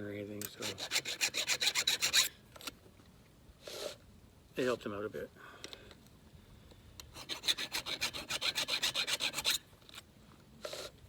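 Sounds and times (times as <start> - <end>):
hand file rasping chainsaw chain: 0.6 - 2.3, 7.2 - 9.6.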